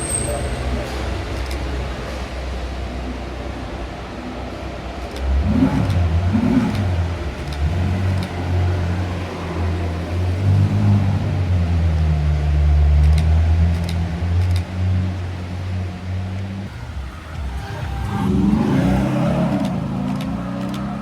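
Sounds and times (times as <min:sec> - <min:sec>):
car engine revving: 0:05.0 - 0:21.0.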